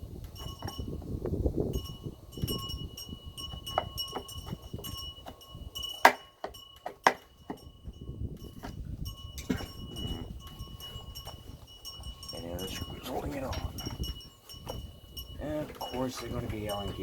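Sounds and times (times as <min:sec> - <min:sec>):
sharp metallic clanks: 0:08.4 - 0:17.0.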